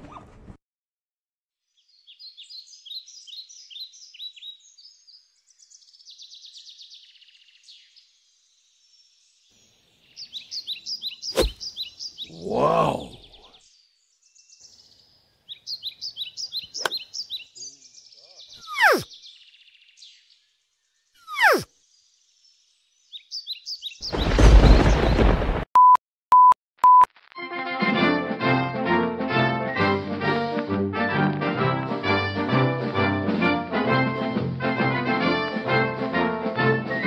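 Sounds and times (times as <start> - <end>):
small birds chirping: 1.6 - 25.2.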